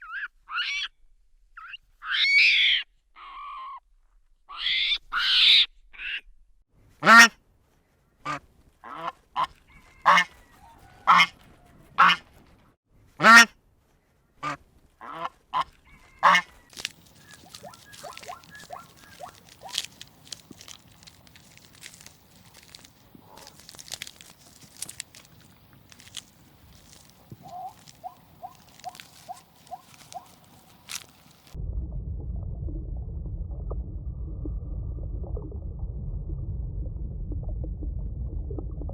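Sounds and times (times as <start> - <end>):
waterfowl calling: 8.3 - 12.2, 14.4 - 31.6.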